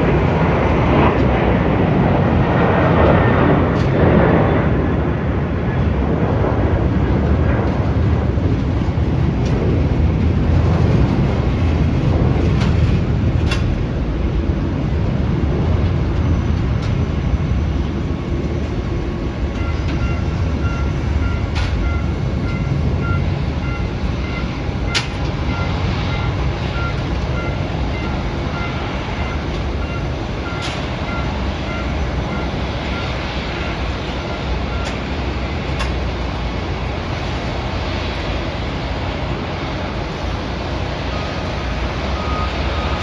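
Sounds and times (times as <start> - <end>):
jet engine rumble: 0.0 - 43.0
high beep: 19.5 - 35.1, 42.1 - 43.0.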